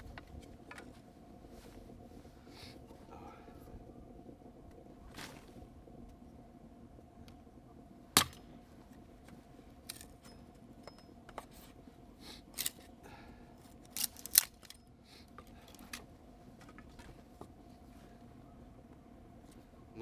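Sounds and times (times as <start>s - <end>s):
sharp clicks and snaps: 13.9s - 14.8s.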